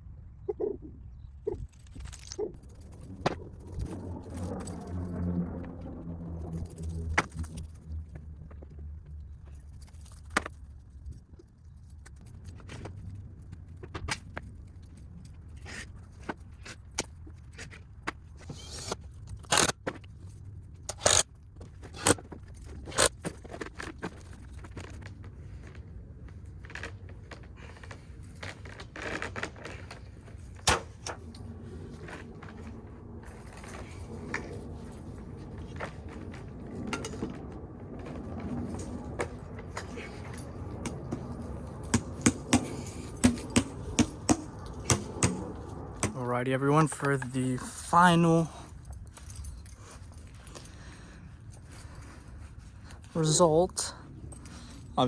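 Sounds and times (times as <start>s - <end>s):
steady low hum: 0.0s - 16.6s, 29.9s - 55.0s.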